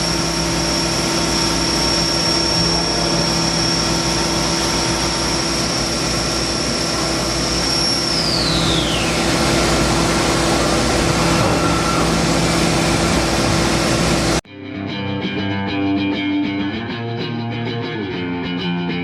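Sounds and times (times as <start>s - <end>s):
machining center whining: 0.0s - 14.4s
spindle winding down: 0.0s - 14.4s.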